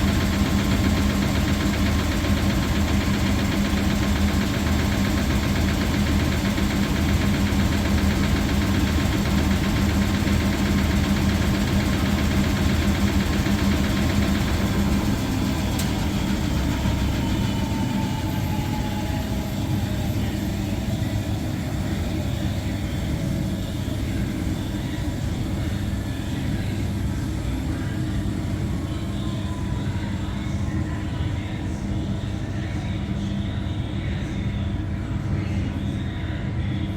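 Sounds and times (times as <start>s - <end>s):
motor whine: 0.0s - 34.1s
washing machine spinning: 0.0s - 36.7s.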